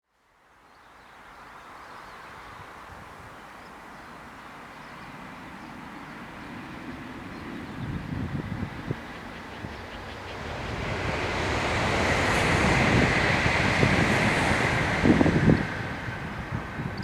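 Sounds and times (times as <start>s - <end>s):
train passing at high speed: 2.3s - 17.0s
wind buffeting microphone: 6.4s - 17.0s.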